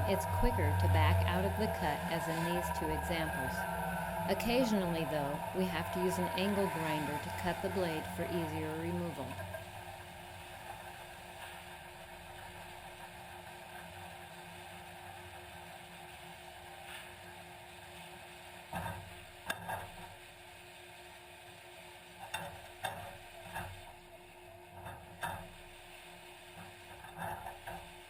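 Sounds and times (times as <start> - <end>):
motor running: 0.0 - 11.2.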